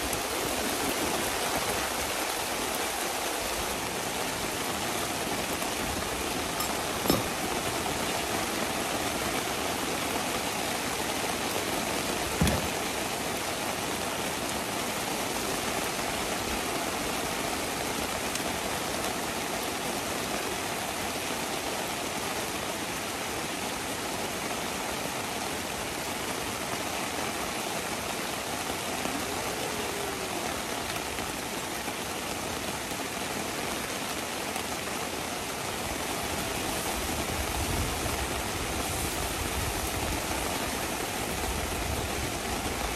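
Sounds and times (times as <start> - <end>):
heavy rain falling: 0.0 - 42.9
knock: 12.4 - 12.8.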